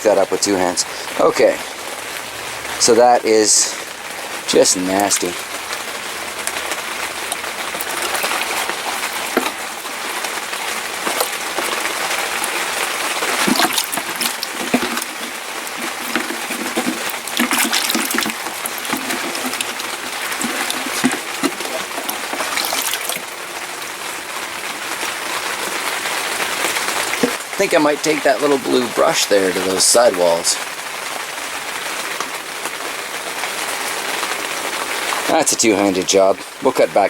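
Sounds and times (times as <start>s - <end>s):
water splashing and trickling: 0.0s - 32.5s.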